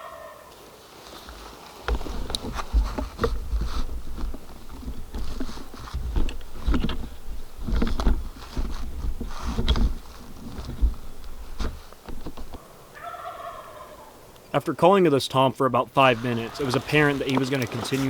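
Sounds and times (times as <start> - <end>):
rustling in dry leaf litter: 16.0 - 18.0.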